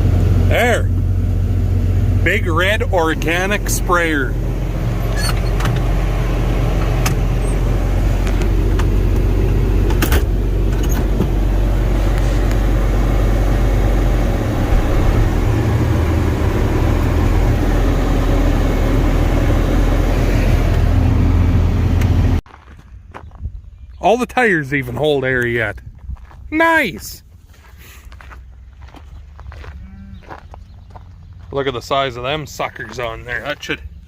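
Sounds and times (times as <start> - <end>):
tractor engine running: 0.0 - 22.4.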